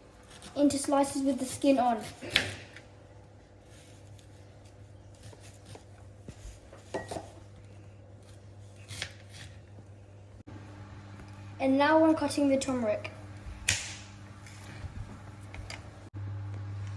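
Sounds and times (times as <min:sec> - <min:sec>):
knife cutting on cutting board: 0:08.2 - 0:09.6.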